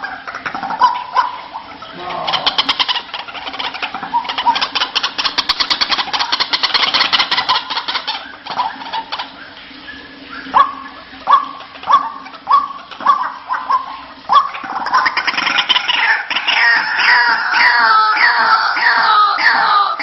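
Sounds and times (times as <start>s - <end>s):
bird harsh croaking call: 0.0s - 20.0s.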